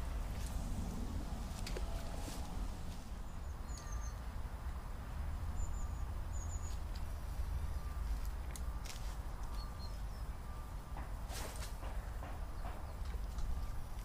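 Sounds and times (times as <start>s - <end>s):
wind rumble on microphone: 0.0s - 8.5s
small bird chirping: 3.1s - 4.3s, 5.5s - 8.2s, 8.8s - 10.8s.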